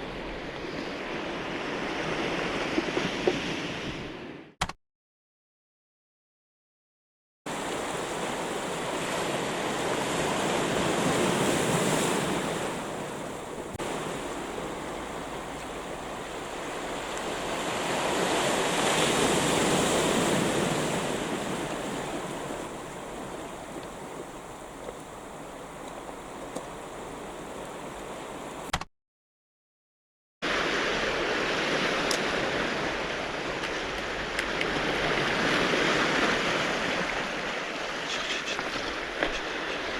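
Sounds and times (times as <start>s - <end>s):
surf washing onto cobble shore: 7.5s - 28.7s, 30.4s - 39.9s.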